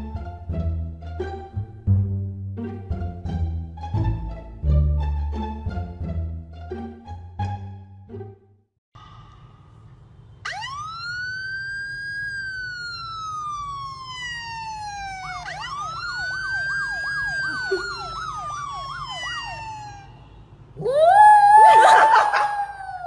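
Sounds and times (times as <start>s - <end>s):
emergency siren wailing: 10.4s - 23.0s
siren fast yelp: 10.4s - 23.0s.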